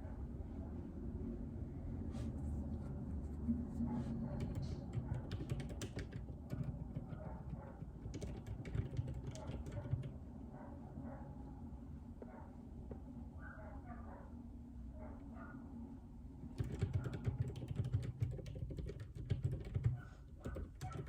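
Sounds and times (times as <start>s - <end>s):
typing on mechanical keyboard: 4.4s - 10.2s, 16.5s - 21.0s.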